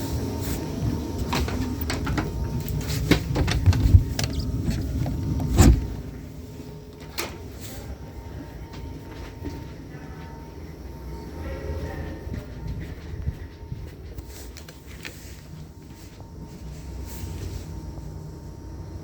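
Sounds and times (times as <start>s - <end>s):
low train rumble: 0.0s - 19.0s
knocks and clicks: 1.3s - 6.0s.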